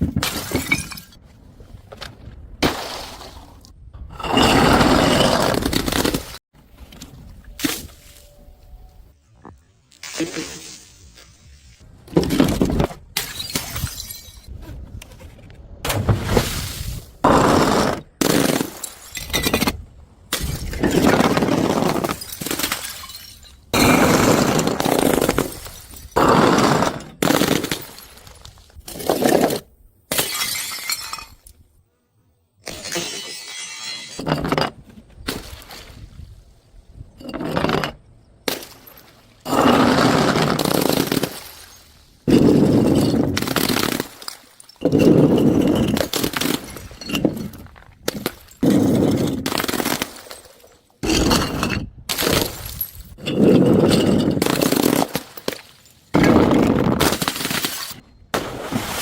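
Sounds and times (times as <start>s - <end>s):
glass bottles smashing: 0.2s - 1.2s, 13.2s - 14.5s, 18.4s - 19.7s, 20.4s - 28.3s, 30.1s - 31.5s, 32.7s - 34.7s, 38.5s - 58.0s.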